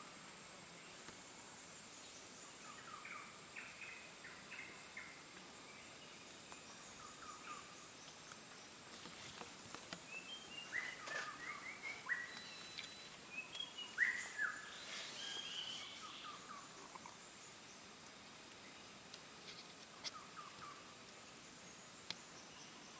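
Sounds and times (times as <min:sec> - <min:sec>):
faint high hum: 0:00.0 - 0:22.9
birds chirping: 0:02.0 - 0:19.0, 0:19.6 - 0:22.9.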